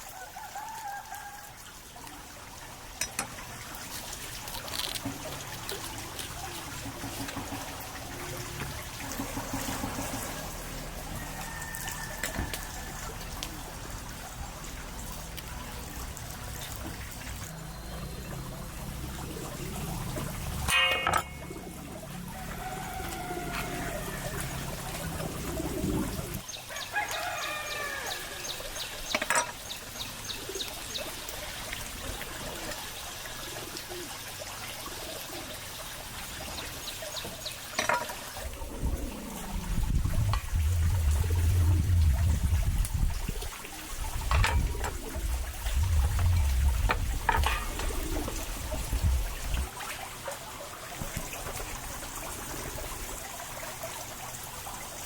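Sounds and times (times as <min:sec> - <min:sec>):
water running and trickling: 0:00.0 - 0:55.0
heavy low rumble: 0:38.4 - 0:49.7.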